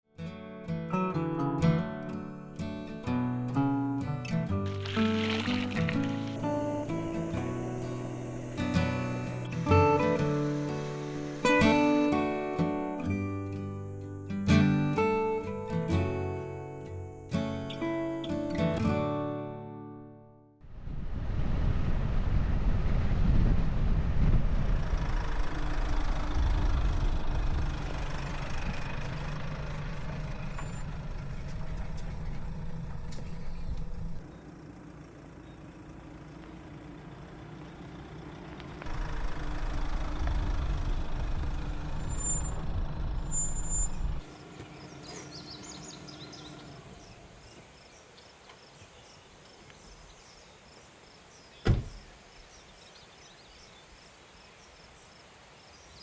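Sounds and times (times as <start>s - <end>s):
vehicle engine humming and rumbling: 3.2s - 12.9s, 20.8s - 48.5s
high chirps: 41.0s - 46.6s.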